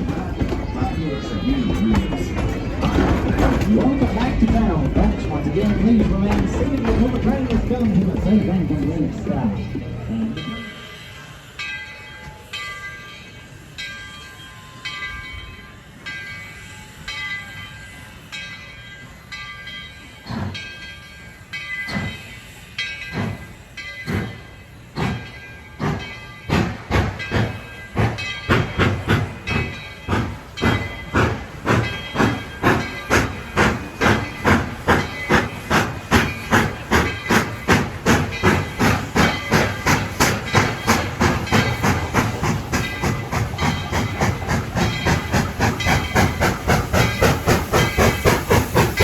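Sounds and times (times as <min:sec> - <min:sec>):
steam locomotive exhaust chuffs: 0:00.0 - 0:11.6, 0:19.2 - 0:49.0
steam hiss: 0:19.1 - 0:49.0.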